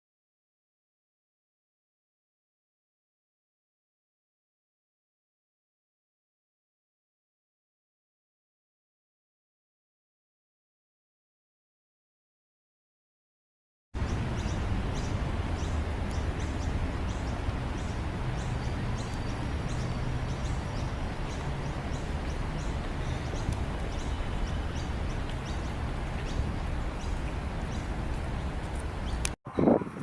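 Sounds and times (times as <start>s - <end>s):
small birds chirping: 14.0s - 29.8s
low outdoor background rumble: 14.0s - 30.0s.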